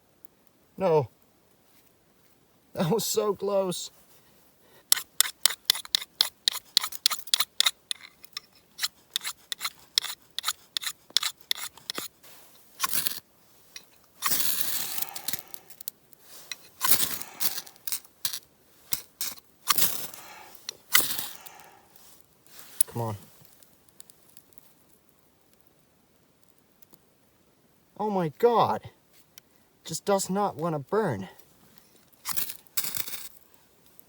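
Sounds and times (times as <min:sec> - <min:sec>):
ferro rod scraping: 0:04.9 - 0:21.7.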